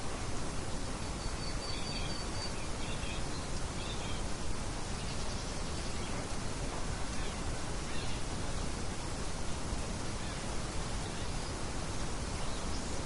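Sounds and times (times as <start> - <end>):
wind: 0.0 - 13.0
faint bird chirps: 1.1 - 4.2.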